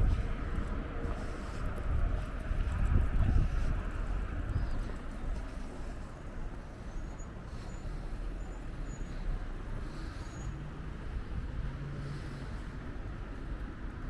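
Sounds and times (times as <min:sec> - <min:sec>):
wind rumbling on microphone: 0:00.0 - 0:08.5
low engine hum: 0:00.0 - 0:14.0
road traffic: 0:00.0 - 0:14.0.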